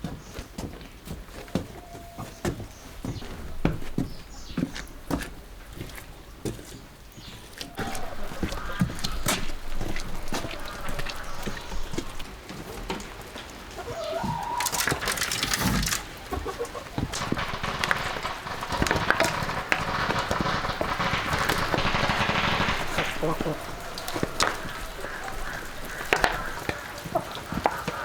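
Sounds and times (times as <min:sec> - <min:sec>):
chickens clucking: 0:01.3 - 0:28.0
scattered clicks: 0:14.6 - 0:16.3, 0:17.1 - 0:28.0
steady hiss: 0:17.1 - 0:28.0.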